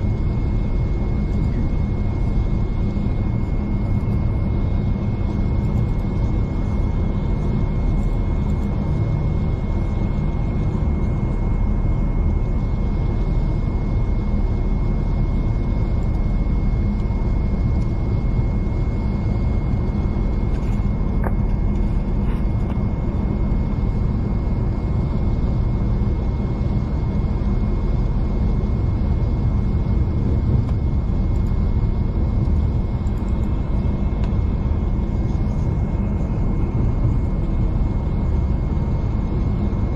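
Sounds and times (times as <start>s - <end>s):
train rumble from inside carriage: 19.4s - 23.3s.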